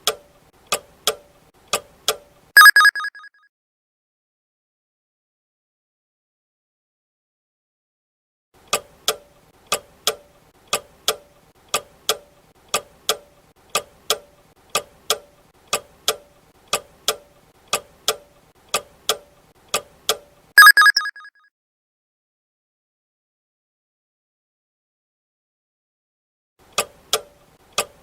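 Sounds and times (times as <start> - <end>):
ringing alarm tone: 2.6 - 3.3, 20.6 - 21.3.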